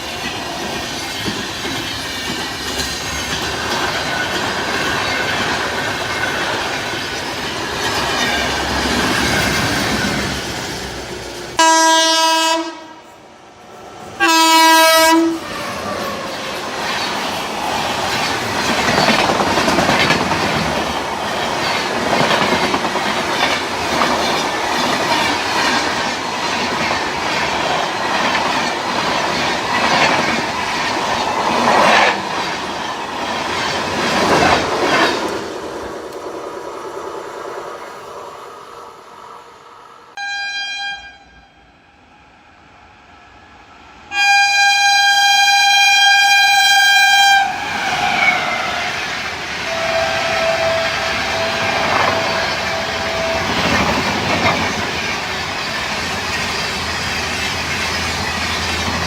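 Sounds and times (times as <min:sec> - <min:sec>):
train wheels clattering: 0:00.0 - 0:11.6, 0:15.9 - 0:36.3, 0:47.8 - 0:59.0
locomotive horn blasts: 0:11.6 - 0:13.1, 0:14.2 - 0:15.4, 0:40.2 - 0:41.6, 0:44.1 - 0:47.5, 0:49.7 - 0:53.9.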